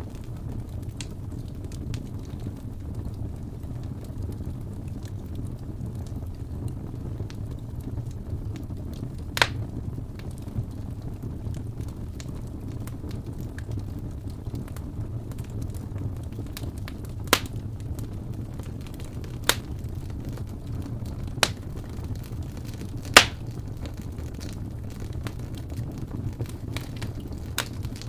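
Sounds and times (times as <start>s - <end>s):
wood fire crackling: 0.0s - 28.0s
sharp pops of fire: 9.2s - 10.5s, 15.4s - 28.0s.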